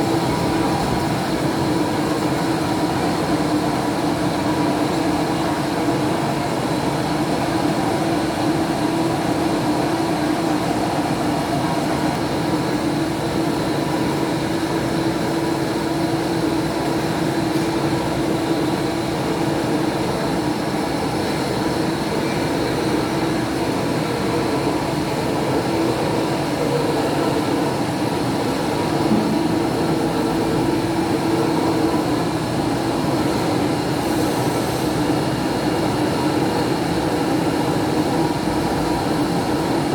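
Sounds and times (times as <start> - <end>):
metalworking machine humming: 24.3 - 34.0.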